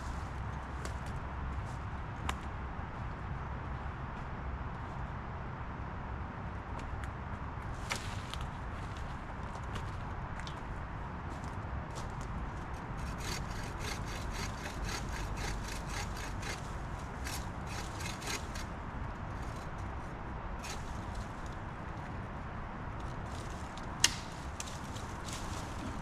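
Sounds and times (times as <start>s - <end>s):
hand saw cutting branch: 13.0s - 18.7s.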